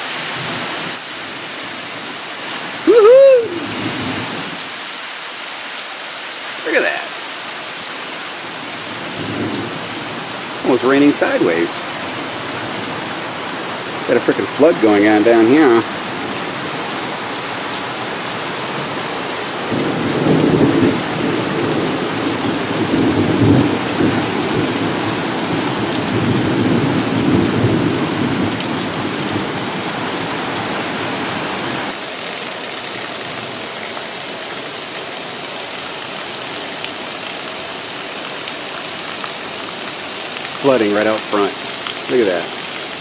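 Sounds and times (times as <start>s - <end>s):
heavy rain pouring: 0.0s - 43.0s
thunder rumbling: 19.7s - 29.7s.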